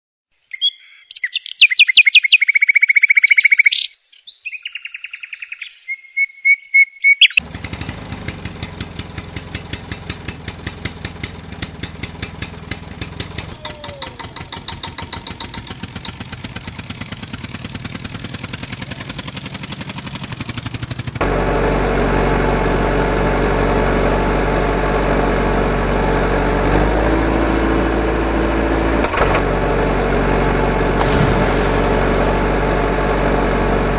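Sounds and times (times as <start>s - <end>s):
vehicle engine puttering: 7.4s - 33.9s.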